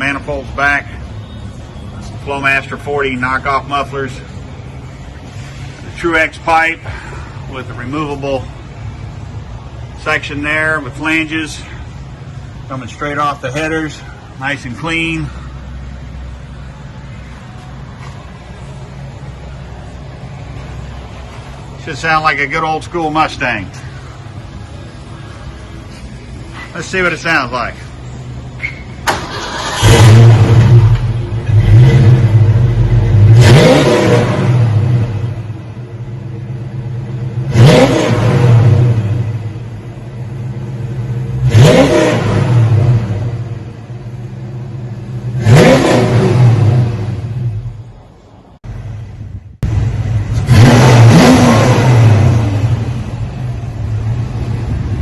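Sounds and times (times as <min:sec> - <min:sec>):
car engine idling and revving: 0:00.0 - 0:55.0
car engine settling to idle: 0:28.6 - 0:31.3.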